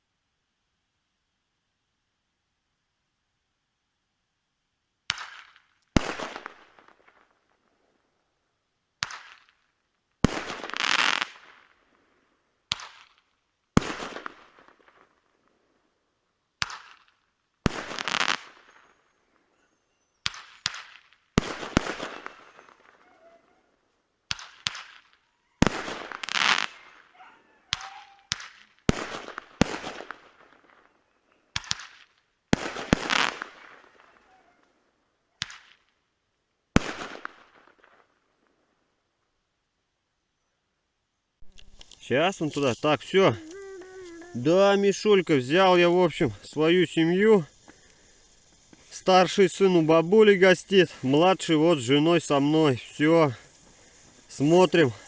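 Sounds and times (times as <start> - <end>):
fireworks bangs with crackle: 5.1 - 7.7, 9.0 - 15.6, 16.6 - 23.6, 24.2 - 34.6, 35.4 - 36.0, 36.7 - 38.6, 41.4 - 55.0.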